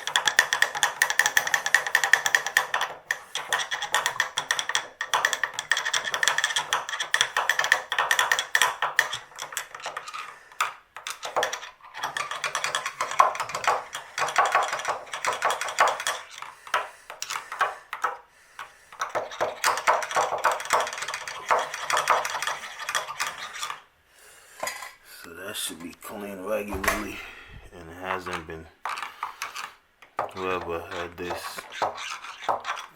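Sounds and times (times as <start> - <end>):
metal tool scraping and clicking: 30.9 - 32.9.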